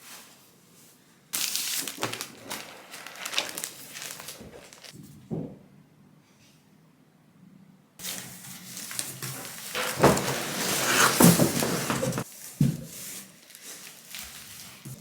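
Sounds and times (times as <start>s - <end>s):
rustling: 1.4s - 5.1s, 8.0s - 15.0s.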